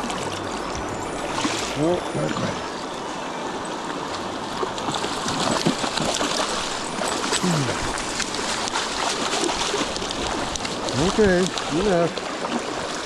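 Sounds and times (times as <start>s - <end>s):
river water running: 0.0s - 13.0s
fish splashing in shallows: 4.5s - 13.0s.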